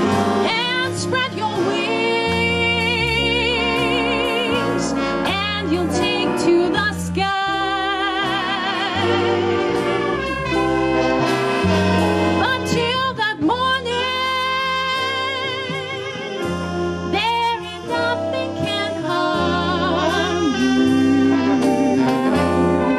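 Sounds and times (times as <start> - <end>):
bass line: 0.0 - 22.9
brass: 0.0 - 22.9
person singing with vibrato: 12.5 - 22.9.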